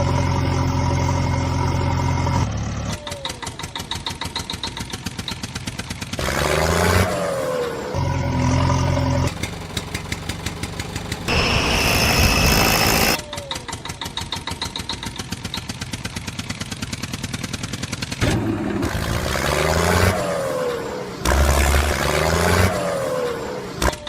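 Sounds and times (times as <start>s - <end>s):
tractor engine chugging: 0.0s - 6.4s, 8.0s - 19.4s
high whine: 11.3s - 13.2s.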